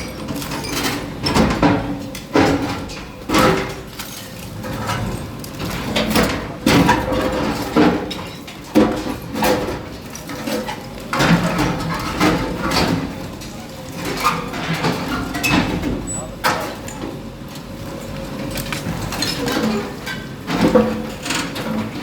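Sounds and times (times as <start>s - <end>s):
bulldozer scraping and crashing masonry: 0.0s - 17.0s, 18.5s - 22.0s.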